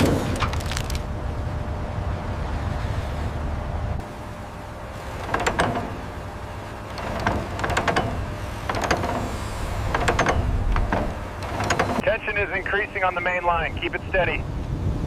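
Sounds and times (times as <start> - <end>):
steady low rumble: 0.0 - 15.0
sharp metallic clanks and rattles: 5.1 - 6.1, 6.8 - 12.0.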